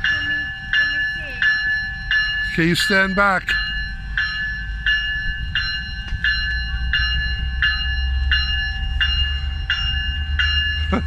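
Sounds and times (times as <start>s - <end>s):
bell ringing: 0.0s - 11.0s
train rumbling: 0.0s - 11.0s.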